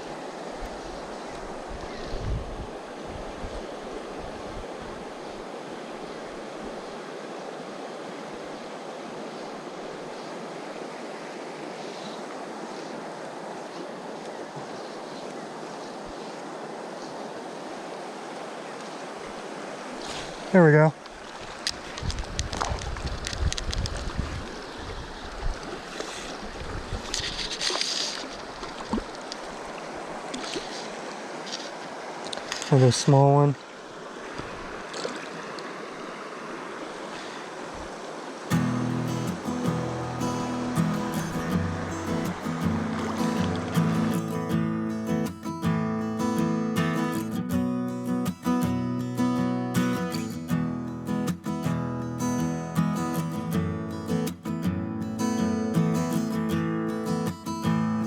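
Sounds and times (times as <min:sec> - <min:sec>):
river current rushing: 0:00.0 - 0:22.1, 0:24.1 - 0:58.0
wind rumble on microphone: 0:00.6 - 0:05.1, 0:21.4 - 0:29.1
water splash: 0:25.6 - 0:32.7, 0:34.3 - 0:35.6, 0:38.5 - 0:44.5.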